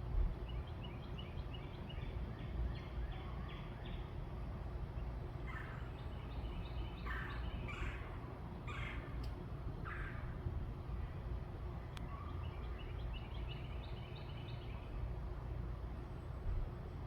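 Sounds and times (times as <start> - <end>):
birds calling: 4.9 - 11.2, 12.0 - 15.0.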